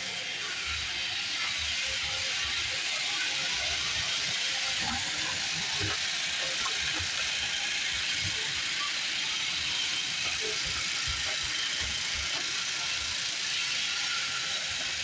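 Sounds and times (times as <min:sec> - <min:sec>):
robot vacuum whirring: 0:00.0 - 0:15.0.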